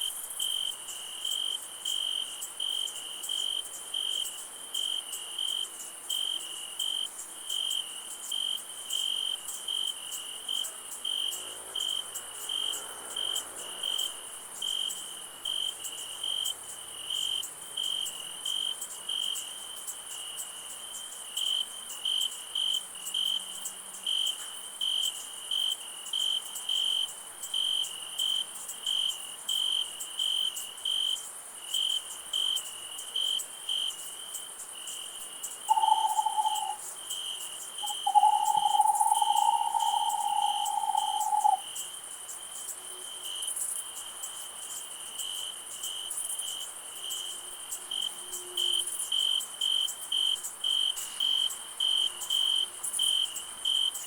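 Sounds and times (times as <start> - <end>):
crickets chirping: 0.0 - 54.0
high insect hiss: 0.0 - 54.0
whistled notes: 35.7 - 36.8, 37.8 - 41.6.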